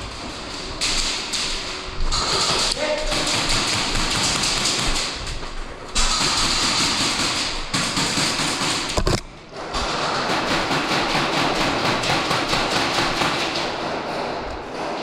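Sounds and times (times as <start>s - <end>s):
rapid mechanical clatter: 0.0s - 15.0s
airsoft guns firing full auto: 2.2s - 5.2s, 6.0s - 9.0s, 9.8s - 14.3s.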